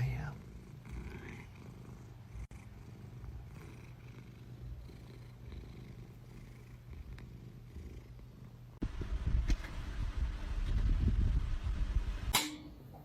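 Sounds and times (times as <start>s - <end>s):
cat purring: 0.0s - 8.8s.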